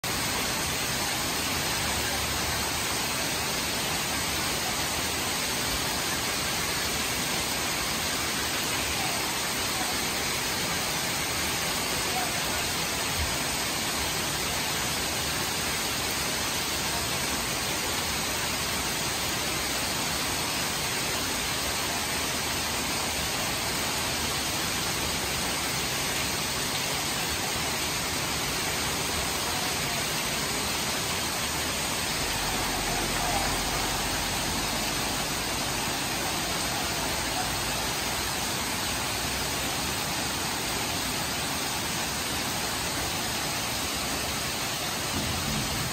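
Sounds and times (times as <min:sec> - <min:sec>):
heavy rain pouring on street: 0:00.0 - 0:45.9.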